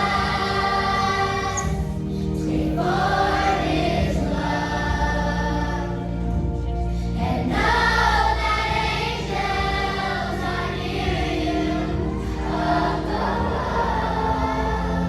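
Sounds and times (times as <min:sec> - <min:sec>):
choir singing: 0:00.0 - 0:15.0
musical accompaniment: 0:00.0 - 0:15.0.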